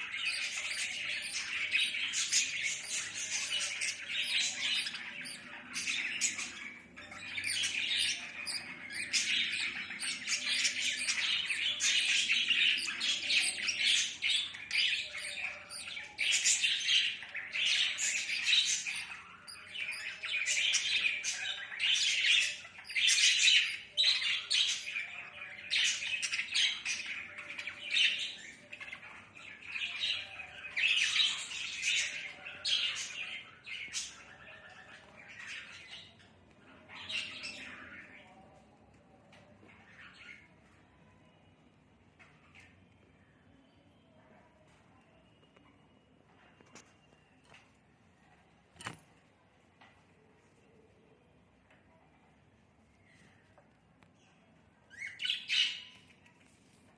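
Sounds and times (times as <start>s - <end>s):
budgerigars chattering and squawking: 0.0s - 28.2s.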